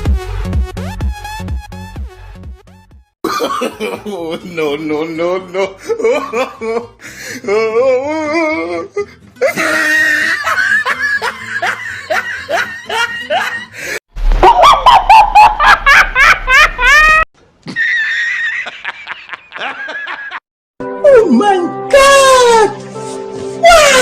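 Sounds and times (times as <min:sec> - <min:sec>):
laughing sound clips: 0:14.3 - 0:20.4.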